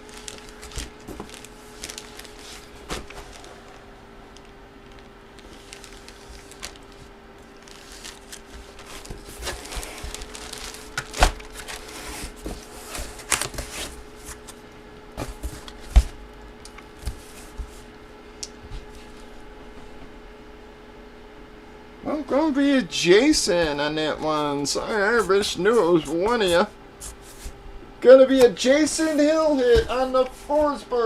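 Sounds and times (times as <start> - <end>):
packaging rustling and crinkling: 0.0 - 14.6
faint steady hum: 0.0 - 31.0.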